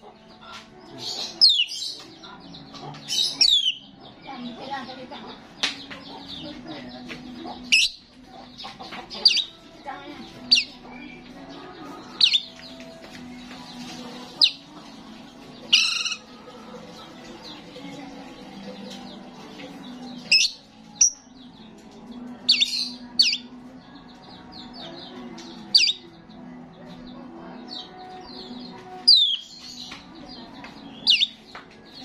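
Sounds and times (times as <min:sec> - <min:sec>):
starling calling: 0:01.0 - 0:02.2, 0:07.6 - 0:09.6, 0:10.4 - 0:11.2, 0:12.1 - 0:12.6, 0:13.8 - 0:16.5, 0:20.1 - 0:21.3, 0:25.6 - 0:26.1, 0:30.9 - 0:31.4.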